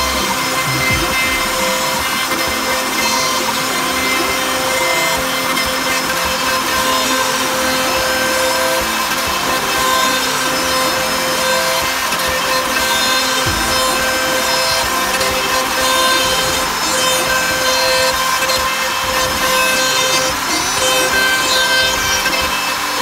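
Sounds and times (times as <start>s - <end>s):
spindle whine: 0.0s - 5.4s
router cutting wood: 0.0s - 23.0s.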